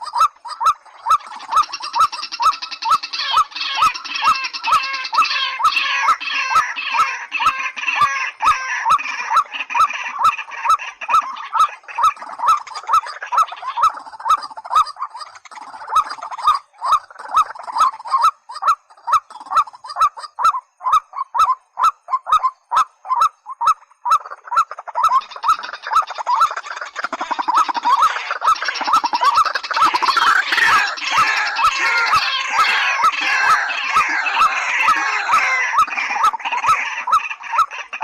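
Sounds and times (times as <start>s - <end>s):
bird hoarse calls: 0.0s - 38.0s
higher chattering bird calls: 0.0s - 38.0s.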